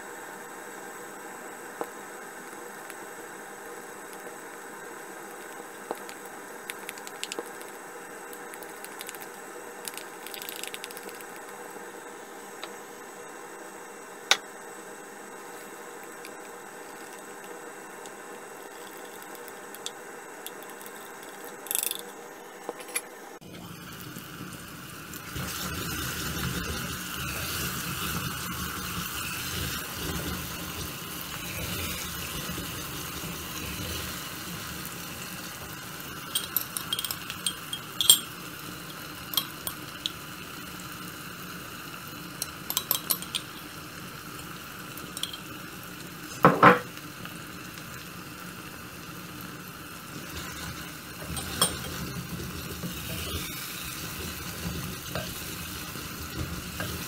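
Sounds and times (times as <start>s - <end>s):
onion and tomato sizzling: 23.4s - 57.0s.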